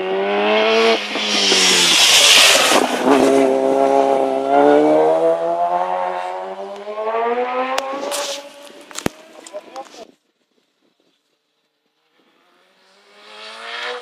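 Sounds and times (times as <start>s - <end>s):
motorcycle engine passing by: 0.0s - 9.7s.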